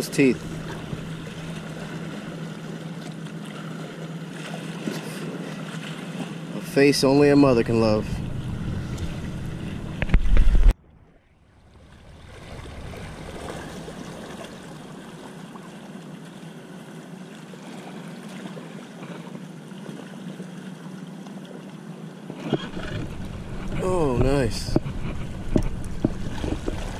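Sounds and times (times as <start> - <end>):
low hum: 0.0 - 4.3, 6.6 - 17.4, 22.4 - 26.9
wind rumbling on microphone: 7.3 - 15.1, 22.4 - 26.9.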